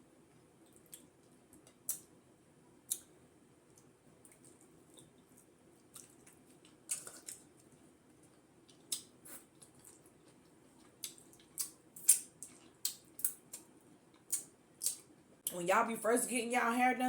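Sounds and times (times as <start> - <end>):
wet eating sounds: 3.7 - 15.1.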